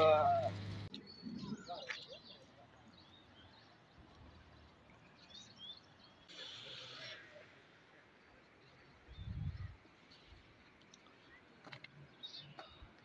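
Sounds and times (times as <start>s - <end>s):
birds chirping faintly: 0.0s - 13.0s
outdoor hiss: 6.3s - 7.9s.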